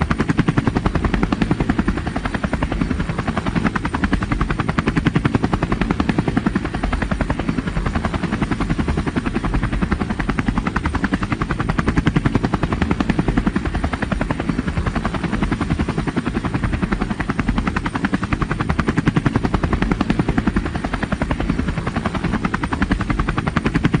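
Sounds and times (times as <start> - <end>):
helicopter rotor chopping: 0.0 - 24.0.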